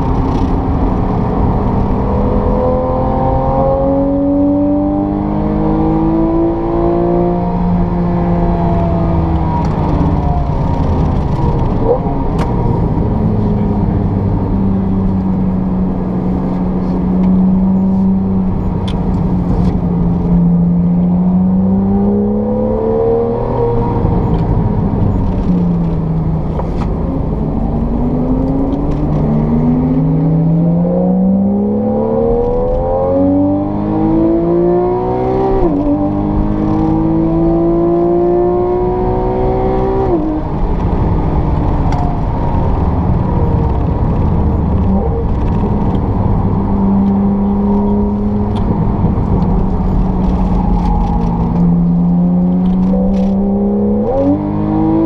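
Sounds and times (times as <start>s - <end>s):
car engine revving through gears: 0.0s - 55.0s.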